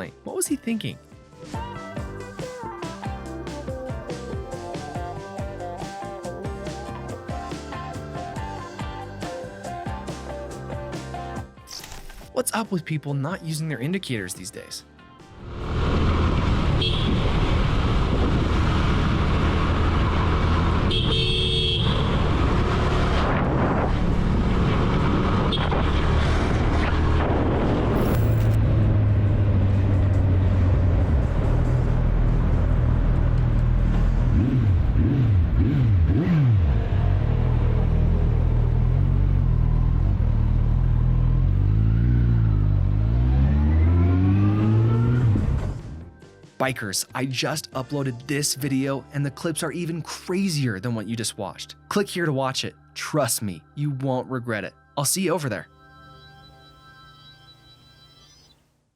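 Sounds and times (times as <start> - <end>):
road noise: 15.2 - 46.2
vehicle engine accelerating: 15.3 - 21.2, 21.8 - 46.1
vehicle horn blaring: 16.7 - 17.4, 20.8 - 22.4, 25.4 - 26.0.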